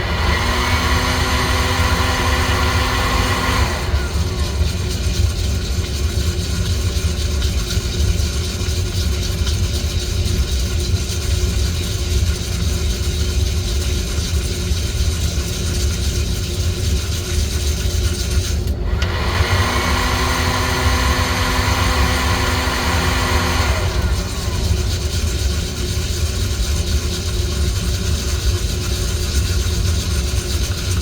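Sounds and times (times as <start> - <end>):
steady low hum: 0.0 - 19.0, 20.0 - 31.0
coffee beans rattling: 24.0 - 31.0.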